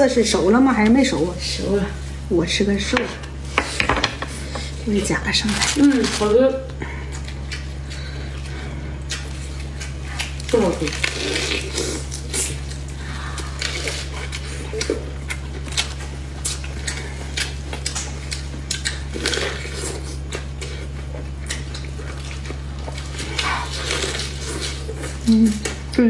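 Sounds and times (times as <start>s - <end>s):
steady low hum: 0.0s - 26.0s
wet chewing and smacking: 7.0s - 26.0s.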